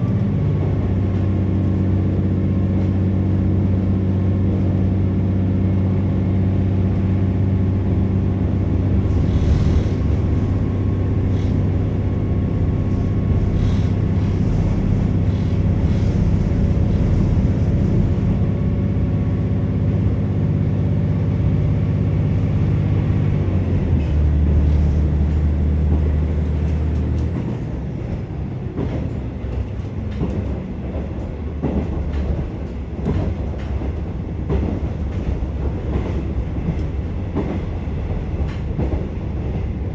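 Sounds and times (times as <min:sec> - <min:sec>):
railcar diesel engine running: 0:00.0 - 0:39.9
train wheels rumbling: 0:00.0 - 0:39.9.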